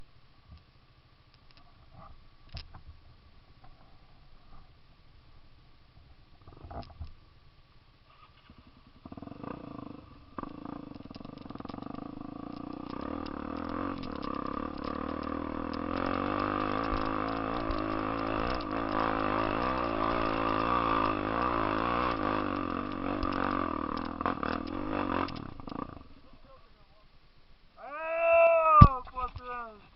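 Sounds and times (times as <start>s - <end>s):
motorcycle engine pulling uphill: 8.2s - 26.8s.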